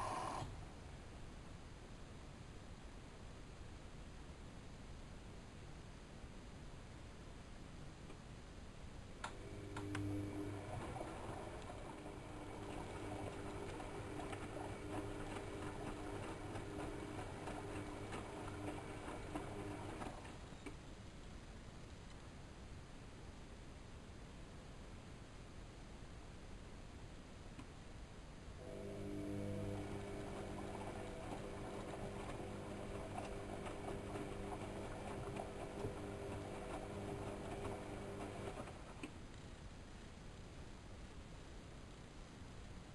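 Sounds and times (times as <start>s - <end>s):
washing machine motor humming: 0.0s - 0.7s, 9.2s - 20.5s, 28.6s - 39.1s.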